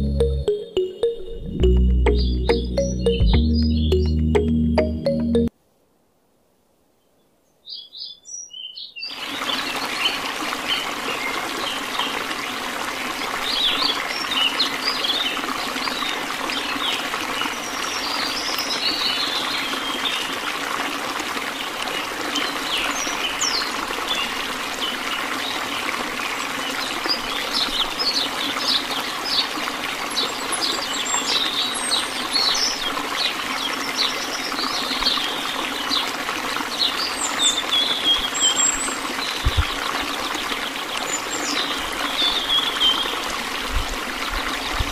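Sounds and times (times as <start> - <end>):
birds chirping: 0.0 - 5.4
water trickling into pond: 8.6 - 44.9.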